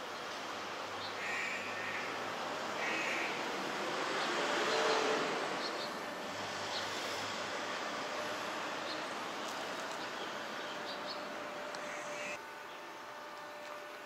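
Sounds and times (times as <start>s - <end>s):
city noise hum: 0.0s - 14.0s
harsh bird calls: 1.0s - 2.2s.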